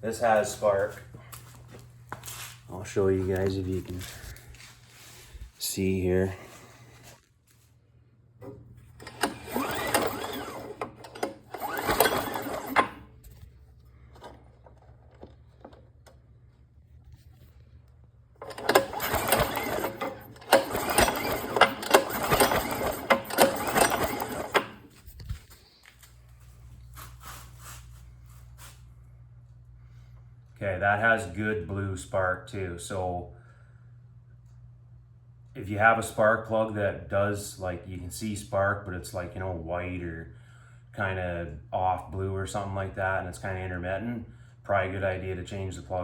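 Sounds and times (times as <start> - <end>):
engine cranking without firing: 8.4 - 16.3, 18.4 - 25.4.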